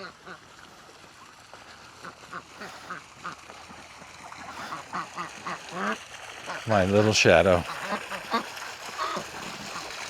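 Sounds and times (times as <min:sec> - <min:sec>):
ducks quacking: 0:02.0 - 0:03.8, 0:04.4 - 0:10.0.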